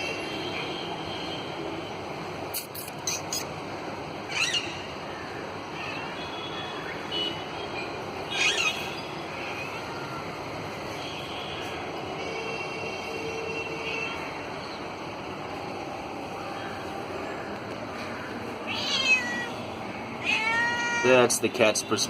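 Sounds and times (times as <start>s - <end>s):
city traffic hum: 0.0s - 22.0s
parrot squawking: 8.3s - 9.0s, 18.7s - 19.5s.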